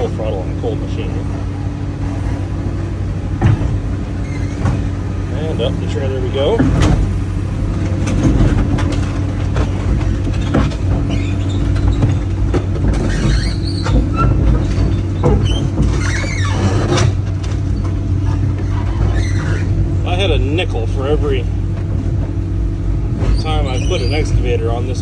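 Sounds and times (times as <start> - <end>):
diesel engine running: 0.0 - 25.0
tracks clanking and knocking: 0.0 - 25.0
high squeals from tracks: 4.0 - 5.1, 10.4 - 12.3, 13.0 - 19.8, 23.3 - 25.0.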